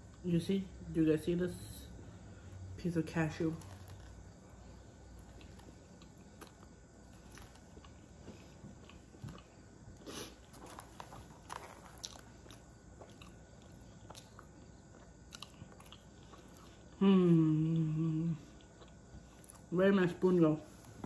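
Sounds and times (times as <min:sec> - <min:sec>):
chewing with wet mouth clicks: 0:05.1 - 0:09.7, 0:10.4 - 0:17.0, 0:18.5 - 0:19.7.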